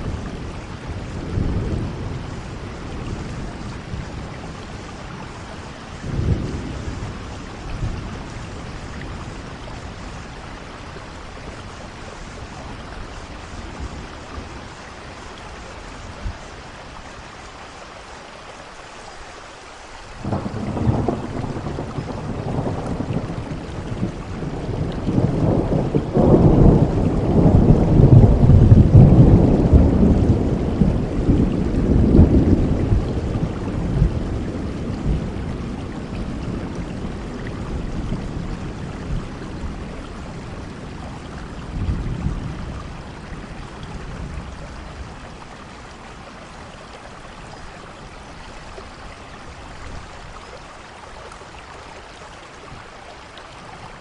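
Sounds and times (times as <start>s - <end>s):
steady rain: 0.0s - 54.0s
thunder rolling: 20.2s - 45.3s.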